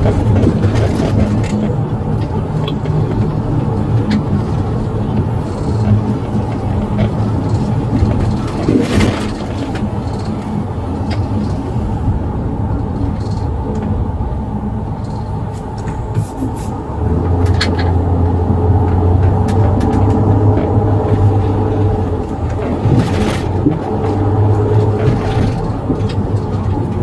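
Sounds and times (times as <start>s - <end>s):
vehicle engine and road rumble: 0.0s - 27.0s.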